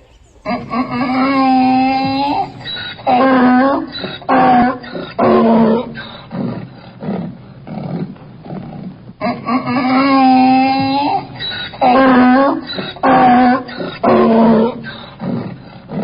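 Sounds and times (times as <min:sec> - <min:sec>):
donkey braying: 0:00.0 - 0:06.5, 0:09.2 - 0:15.5
donkey wheezing breaths: 0:00.0 - 0:09.0, 0:12.6 - 0:16.0.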